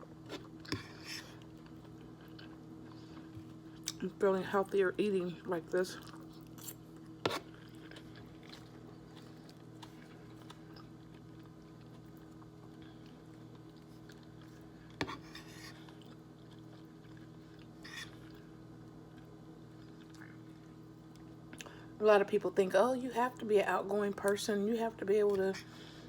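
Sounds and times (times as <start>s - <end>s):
person chewing food: 0.2s - 4.0s, 6.0s - 21.7s.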